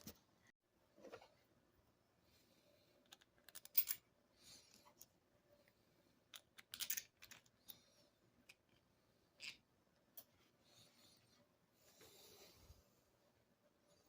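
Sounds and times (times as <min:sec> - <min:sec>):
clicks and knocks of small parts: 0:03.0 - 0:04.0, 0:06.3 - 0:07.8.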